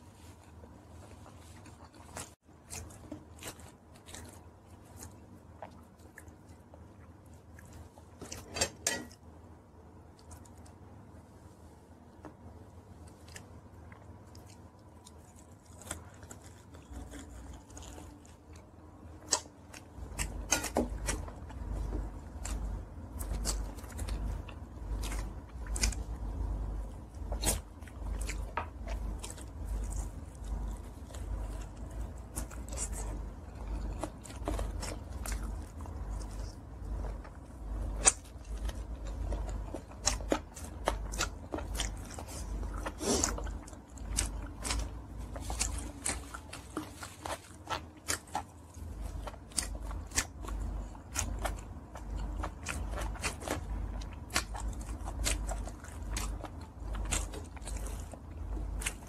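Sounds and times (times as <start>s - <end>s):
chewing and crunching: 0.0s - 9.3s, 9.9s - 11.1s, 12.1s - 59.0s.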